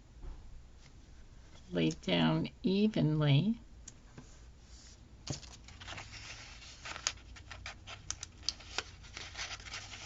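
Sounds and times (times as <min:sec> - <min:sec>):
paper rustling: 0:04.8 - 0:10.0.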